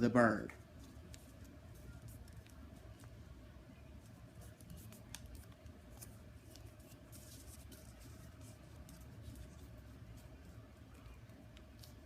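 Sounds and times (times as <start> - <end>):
steady low hum: 0.0 - 12.0
paper crinkling and rustling: 4.0 - 12.0.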